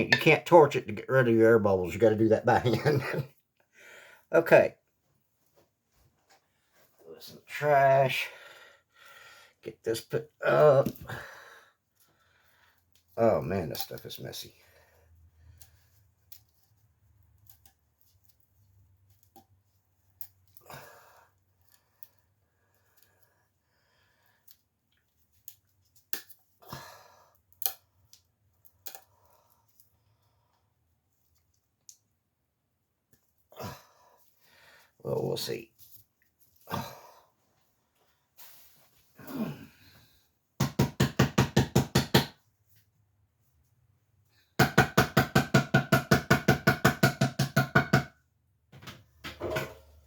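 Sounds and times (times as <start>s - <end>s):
rustling scrape: 38.2s - 39.2s
painting supplies clicking and tapping: 40.6s - 42.4s, 44.6s - 49.8s
hammer knocking on paint can lid: 44.6s - 48.1s.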